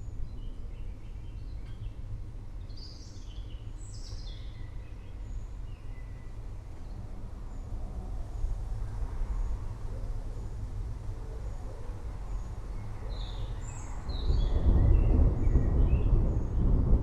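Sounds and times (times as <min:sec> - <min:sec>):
distant thunder rumbling: 0:13.6 - 0:17.0.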